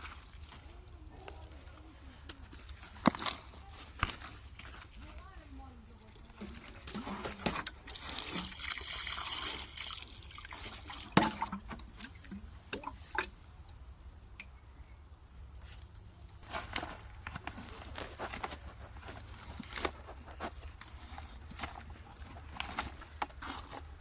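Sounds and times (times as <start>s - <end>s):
water splashing and dripping: 7.6s - 13.3s.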